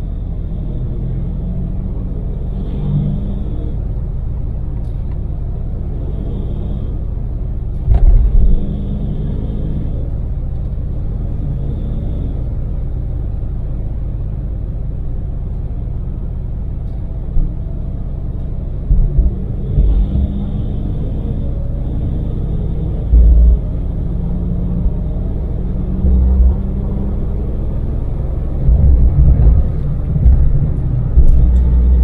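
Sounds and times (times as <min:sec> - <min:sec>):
van engine and road noise: 0:00.0 - 0:32.0
loud low thumps: 0:18.9 - 0:20.4, 0:23.0 - 0:24.1, 0:25.7 - 0:27.2, 0:28.5 - 0:32.0.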